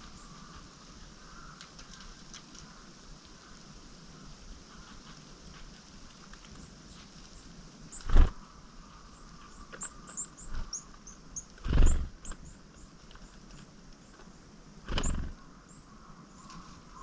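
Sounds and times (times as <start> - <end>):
small songbirds calling: 0.0 - 5.6, 6.2 - 17.0.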